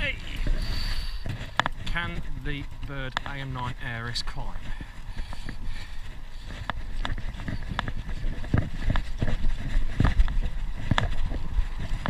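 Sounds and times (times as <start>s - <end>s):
wind rumble on microphone: 0.0s - 12.0s
bike clicks and knocks: 6.4s - 12.0s.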